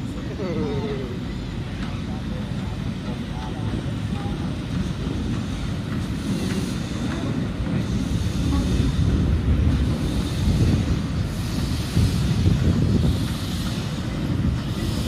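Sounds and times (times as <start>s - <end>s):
train rumbling: 0.0s - 15.0s
wind buffeting microphone: 3.6s - 15.0s.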